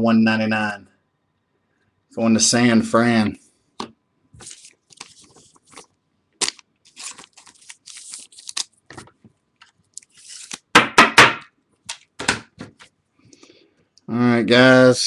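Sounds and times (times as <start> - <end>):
plastic sleeves crinkling: 4.4 - 10.8.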